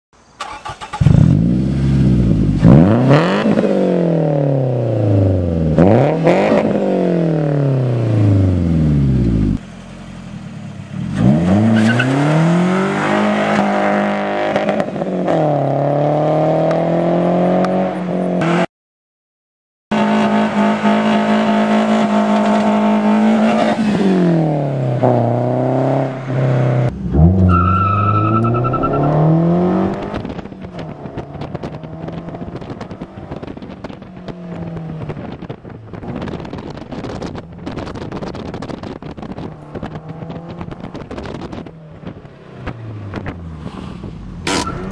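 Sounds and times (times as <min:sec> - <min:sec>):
car engine revving: 0:00.4 - 0:18.7, 0:19.9 - 0:44.9
exhaust crackling: 0:20.0 - 0:44.9
tyre squeal: 0:27.4 - 0:29.3, 0:43.8 - 0:44.9.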